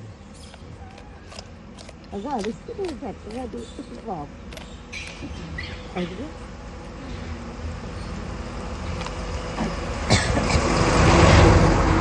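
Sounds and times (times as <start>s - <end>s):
vehicle passing: 8.6s - 12.0s.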